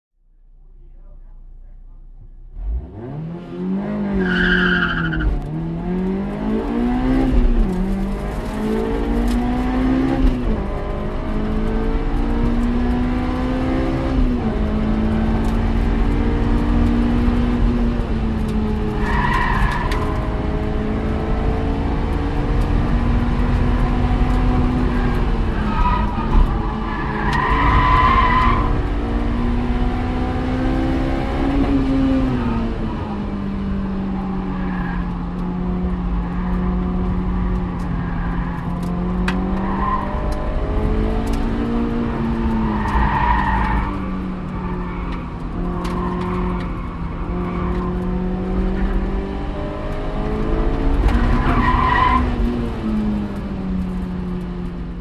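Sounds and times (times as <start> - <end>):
car engine accelerating: 0.3 - 55.0.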